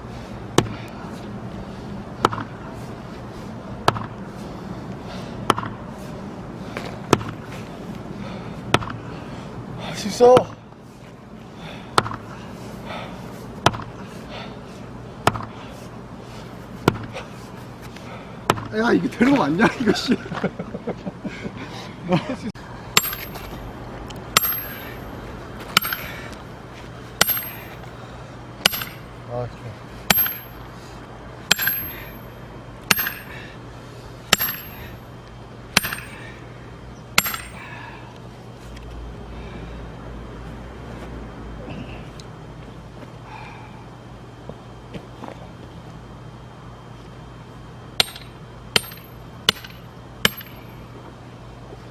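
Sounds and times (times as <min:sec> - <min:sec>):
axe striking log: 0:16.8 - 0:17.1, 0:23.0 - 0:23.6, 0:24.4 - 0:25.0, 0:25.7 - 0:26.2, 0:27.2 - 0:27.8, 0:28.6 - 0:29.1, 0:30.1 - 0:30.5, 0:31.5 - 0:32.1, 0:32.9 - 0:33.4, 0:34.3 - 0:35.0, 0:35.8 - 0:36.3, 0:37.2 - 0:37.7, 0:48.0 - 0:50.6.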